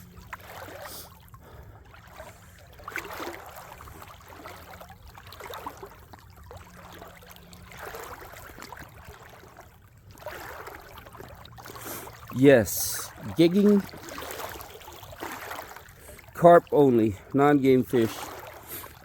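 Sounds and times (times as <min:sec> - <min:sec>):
water sloshing around legs: 0:00.0 - 0:19.0.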